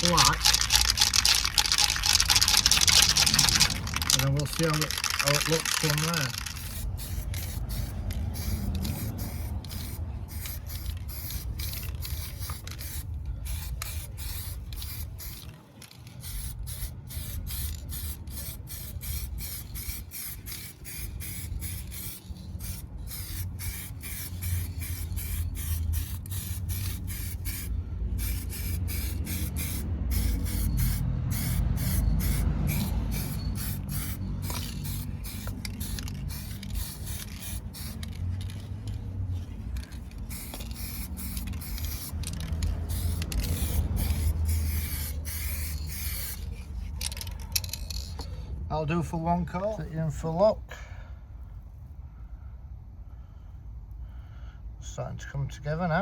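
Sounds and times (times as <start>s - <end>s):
low rumble: 0.6s - 4.5s
spray hissing: 16.2s - 38.0s, 40.3s - 46.4s.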